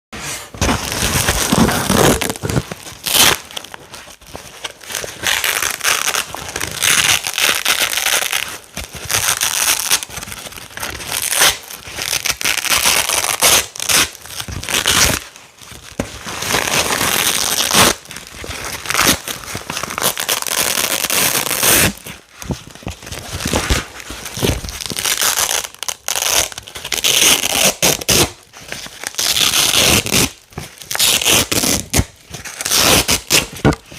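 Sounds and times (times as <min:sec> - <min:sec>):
velcro strips tearing apart: 0:01.0 - 0:03.6, 0:05.2 - 0:10.1, 0:11.0 - 0:15.2, 0:19.9 - 0:22.0, 0:24.4 - 0:28.4, 0:29.0 - 0:33.8.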